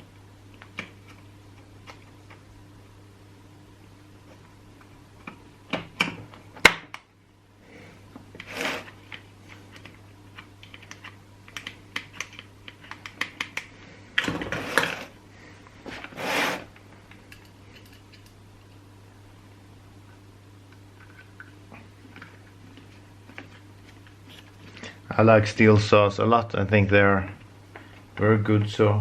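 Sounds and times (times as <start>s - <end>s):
steady low hum: 0.0s - 29.0s
rubbing or scraping: 7.7s - 9.0s, 14.5s - 15.2s, 15.9s - 16.7s.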